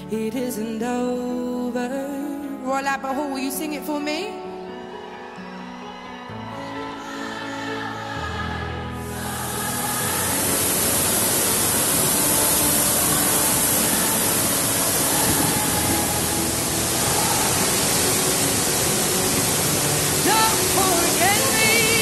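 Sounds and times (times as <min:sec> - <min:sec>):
faint music: 0:00.0 - 0:22.0
waterfall rushing: 0:06.4 - 0:22.0.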